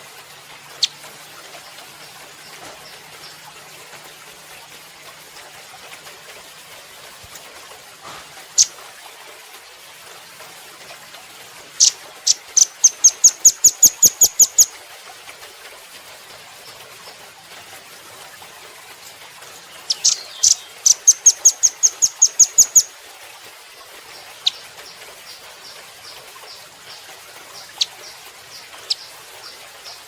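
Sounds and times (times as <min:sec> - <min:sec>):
bird calling sharp chips: 0:19.8 - 0:22.9.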